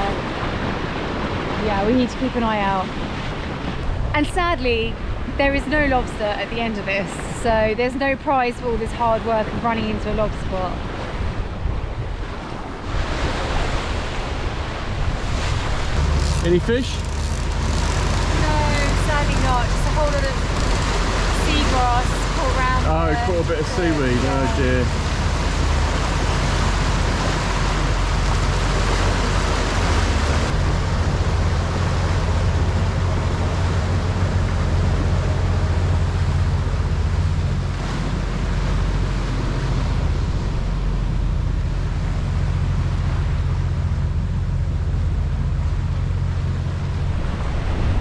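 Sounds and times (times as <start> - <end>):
water rushing past boat: 0.0 - 48.0
low drone: 14.9 - 48.0.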